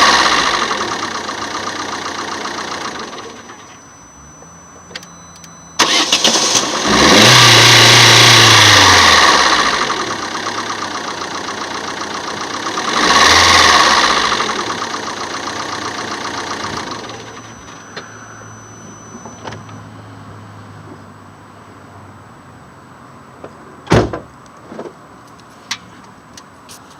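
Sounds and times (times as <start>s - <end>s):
car engine idling and revving: 0.0s - 26.9s
sharp thump: 23.9s - 24.3s.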